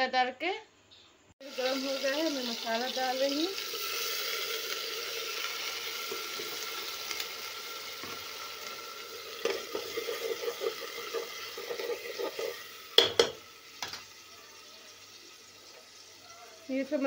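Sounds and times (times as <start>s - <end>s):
spice paste sizzling in oil: 1.4s - 17.0s
spoon scraping a pot: 9.3s - 14.0s.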